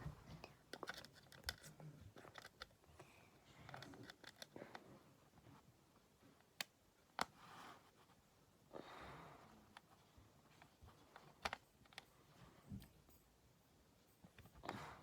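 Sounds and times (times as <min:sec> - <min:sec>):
soft breath-like noise: 0:08.7 - 0:10.1.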